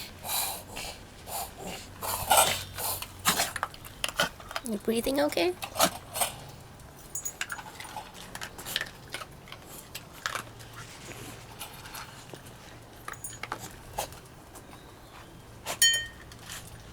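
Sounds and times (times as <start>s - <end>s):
dog breathing noisily: 0.0s - 3.6s
dog snorting: 0.2s - 4.4s.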